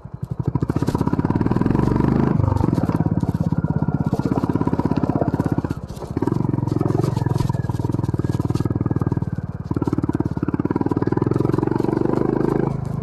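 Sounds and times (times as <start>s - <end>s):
single-cylinder motorcycle engine: 0.0s - 13.0s.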